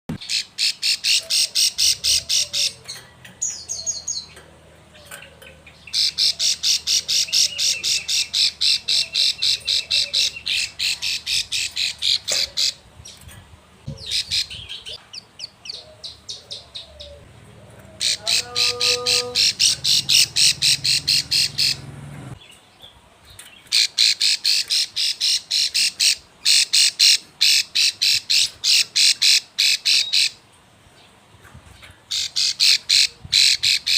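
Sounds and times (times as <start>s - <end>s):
bird calling rapid sharp notes: 18.0s - 21.9s.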